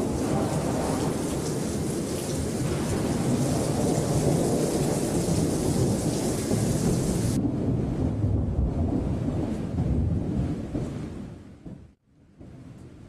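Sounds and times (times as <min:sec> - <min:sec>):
rain falling: 0:00.0 - 0:07.8
low rumble of thunder: 0:00.0 - 0:13.0.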